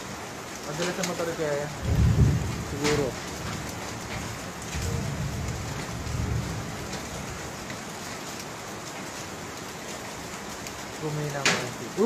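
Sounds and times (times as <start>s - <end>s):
rain pattering on surfaces: 0.0s - 12.0s
low rumble: 1.8s - 7.2s.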